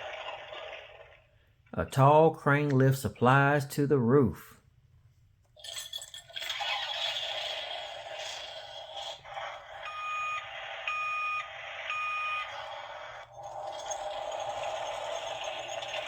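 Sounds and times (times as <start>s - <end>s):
warning beeps: 9.8s - 12.6s.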